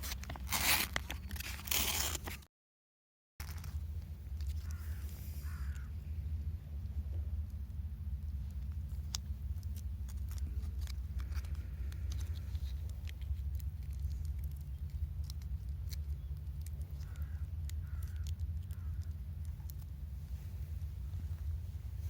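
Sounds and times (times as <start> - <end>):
low steady rumble: 0.0 - 2.5, 3.4 - 22.0
crow cawing: 4.6 - 6.0, 17.0 - 19.1
campfire crackling: 7.4 - 21.6.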